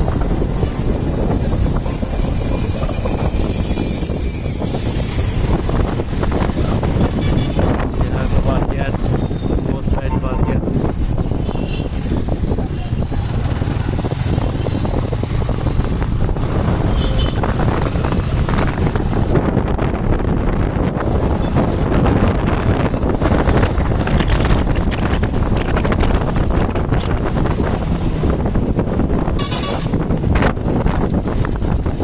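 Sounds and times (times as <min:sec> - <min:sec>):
wind buffeting microphone: 0:00.0 - 0:32.0
motorcycle engine: 0:10.8 - 0:32.0.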